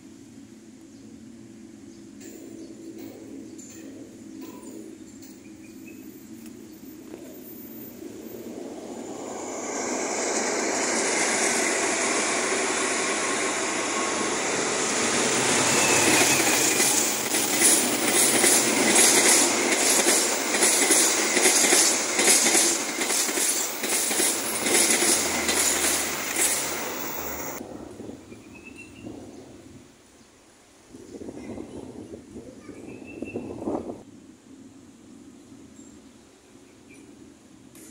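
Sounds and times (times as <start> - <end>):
train wheels clacking on rails: 9.5 - 27.6.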